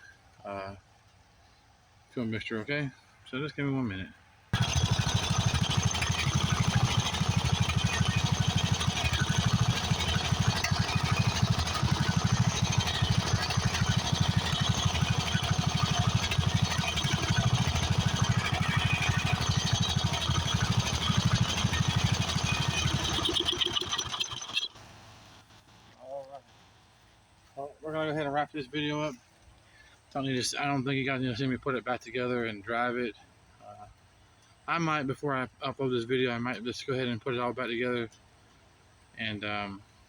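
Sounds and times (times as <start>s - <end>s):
riding mower engine running: 4.6s - 25.7s.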